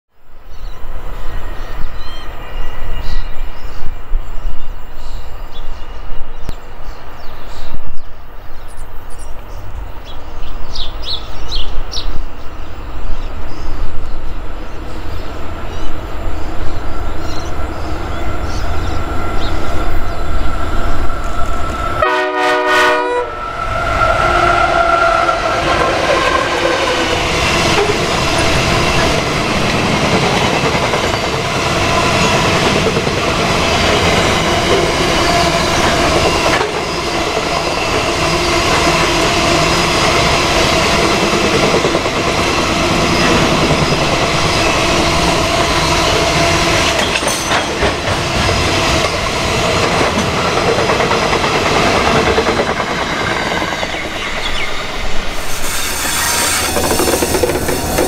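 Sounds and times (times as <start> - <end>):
diesel freight train passing: 0.3 - 58.0
locomotive horn: 21.7 - 27.2
wheels clacking over rail joints: 25.5 - 44.6, 45.2 - 54.7, 56.1 - 58.0.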